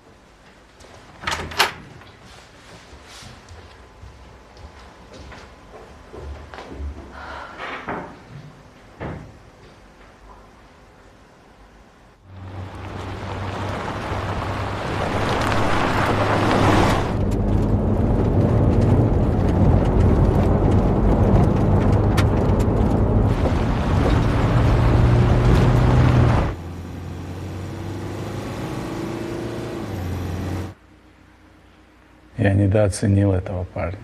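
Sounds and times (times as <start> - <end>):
vehicle engine humming: 12.2 - 32.3.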